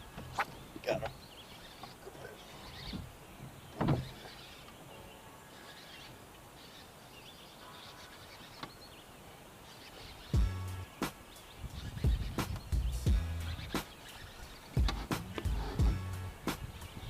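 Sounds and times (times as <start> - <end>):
small birds chirping: 0.0 - 17.0
short thump: 3.8 - 4.2.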